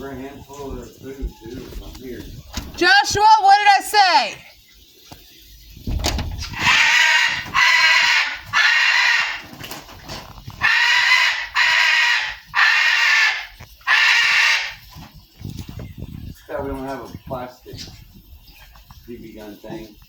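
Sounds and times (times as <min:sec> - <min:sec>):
parrot screaming: 0:02.8 - 0:04.5, 0:06.6 - 0:09.5, 0:10.6 - 0:14.9.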